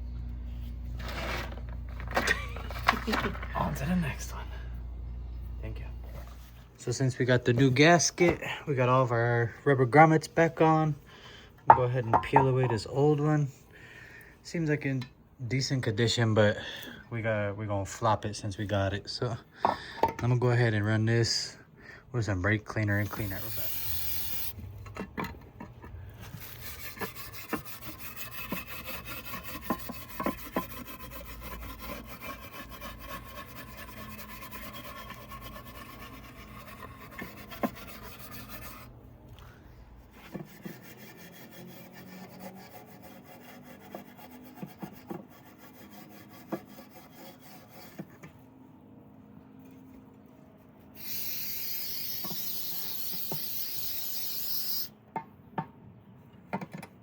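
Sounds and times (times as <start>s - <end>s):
hand scrubbing engine cover: 11.7s - 12.8s, 23.0s - 24.6s, 25.6s - 39.0s, 51.0s - 54.9s
aerosol spray hissing: 23.1s - 24.6s, 51.0s - 54.9s.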